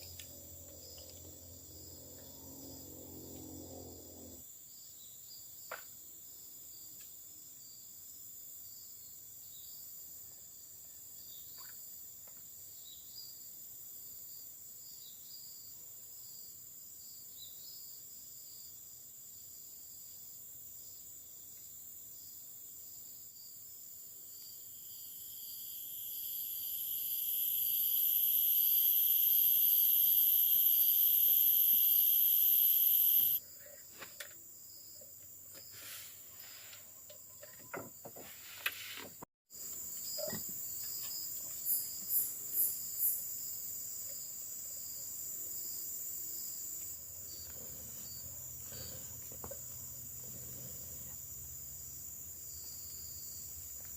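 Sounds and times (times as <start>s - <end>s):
loud insect buzz: 0.0s - 4.4s, 24.8s - 33.4s
insects trilling: 0.0s - 4.5s, 24.3s - 33.5s, 39.6s - 53.9s.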